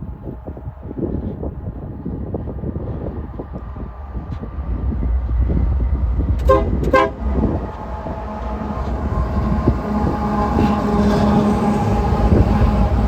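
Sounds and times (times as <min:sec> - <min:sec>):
locomotive engine rumble: 0:00.0 - 0:13.0
locomotive horn blasts: 0:06.5 - 0:12.9.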